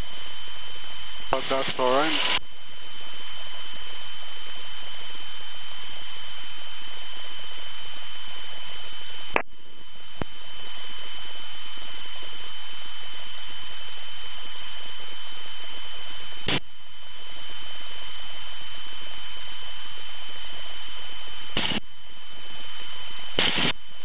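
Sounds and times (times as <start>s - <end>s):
cockpit intercom hiss: 1.3s - 2.4s.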